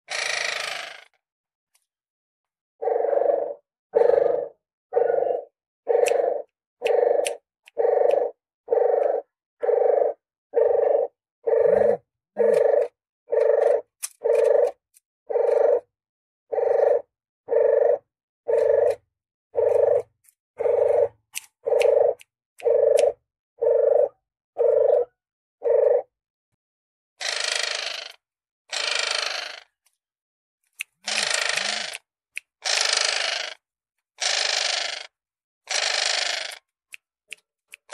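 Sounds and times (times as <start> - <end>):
dove hoarse call notes: 2.8 - 15.9, 16.5 - 19.0, 19.6 - 26.1.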